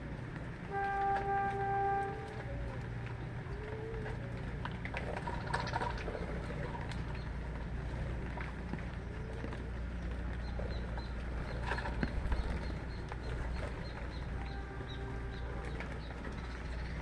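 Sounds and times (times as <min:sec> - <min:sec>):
small birds chirping: 0:05.2 - 0:17.0.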